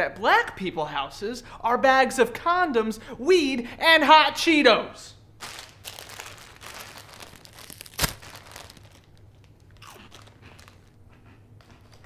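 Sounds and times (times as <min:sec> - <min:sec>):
crinkly packaging rustling: 0:05.4 - 0:11.0.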